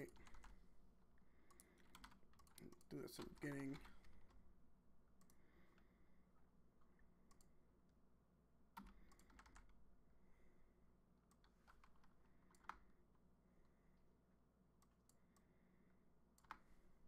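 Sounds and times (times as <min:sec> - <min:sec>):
computer keyboard typing: 0:00.0 - 0:00.6, 0:01.4 - 0:04.4, 0:08.8 - 0:09.8, 0:11.3 - 0:12.9, 0:16.4 - 0:16.7.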